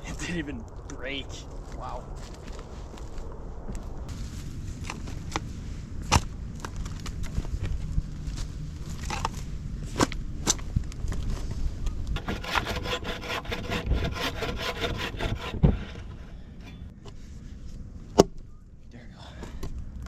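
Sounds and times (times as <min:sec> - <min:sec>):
sharp wooden knocks: 0:12.2 - 0:16.3
hand saw rasping through wood: 0:12.2 - 0:16.9.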